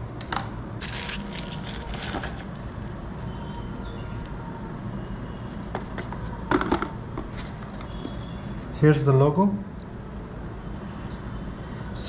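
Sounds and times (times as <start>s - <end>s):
packaging and cable rustling: 0.8s - 3.0s.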